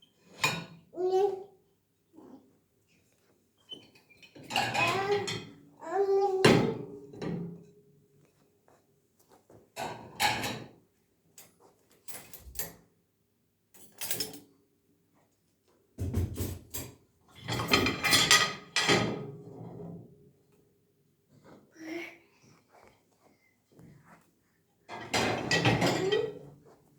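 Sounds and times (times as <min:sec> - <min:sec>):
dishes and cutlery clattering: 0:04.0 - 0:05.7, 0:09.8 - 0:10.7, 0:13.8 - 0:14.5, 0:16.2 - 0:19.5, 0:24.9 - 0:26.6.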